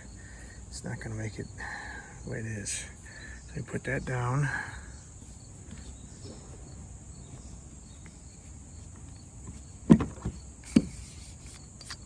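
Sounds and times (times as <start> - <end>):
crickets chirping: 0.0 - 12.0
tripod knocking in kayak: 5.7 - 11.5.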